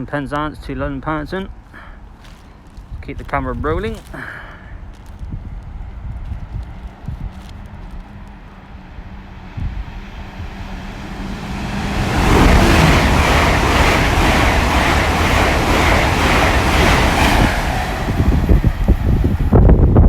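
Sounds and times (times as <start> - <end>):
train passing at speed: 4.7 - 20.0.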